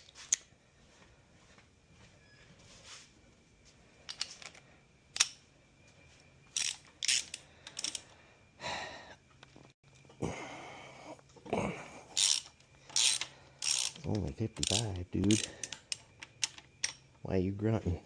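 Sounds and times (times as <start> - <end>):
socket wrench ratchet clicking: 6.6 - 8.0, 12.2 - 17.0
metal tools clinking: 12.2 - 17.2.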